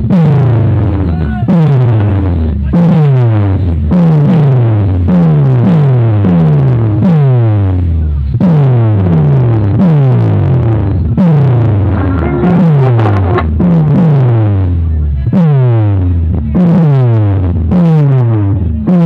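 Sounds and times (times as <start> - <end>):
loud electronic dance music: 11.3 - 13.6.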